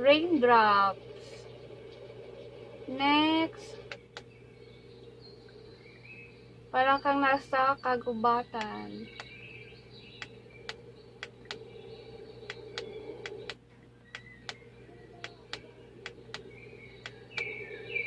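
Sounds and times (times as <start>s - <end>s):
birdsong from small speaker: 0.0s - 18.0s
sharp irregular clicks: 3.8s - 4.3s, 8.6s - 9.3s, 10.2s - 11.7s, 12.5s - 17.6s.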